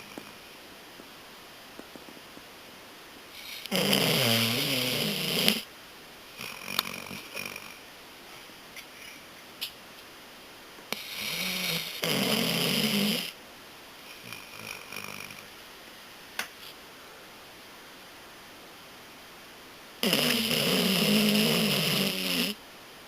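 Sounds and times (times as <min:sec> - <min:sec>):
dog snoring: 0:00.0 - 0:00.4, 0:03.4 - 0:05.7, 0:06.3 - 0:07.8, 0:10.9 - 0:13.4, 0:14.0 - 0:15.5, 0:20.0 - 0:22.6.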